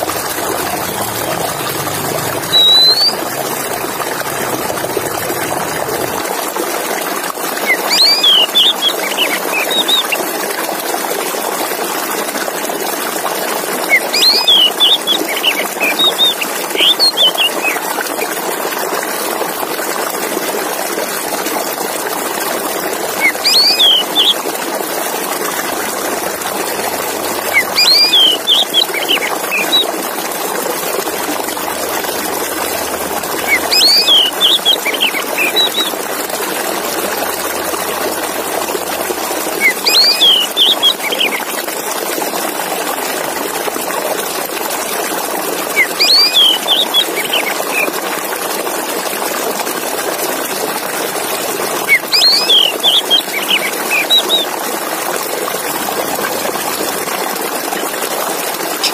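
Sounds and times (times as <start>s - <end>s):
bird singing whistled phrases: 2.5s - 3.2s, 7.6s - 10.2s, 13.9s - 17.8s, 23.2s - 24.4s, 27.5s - 29.9s, 33.4s - 36.0s, 39.6s - 41.4s, 45.8s - 47.9s, 51.9s - 54.5s.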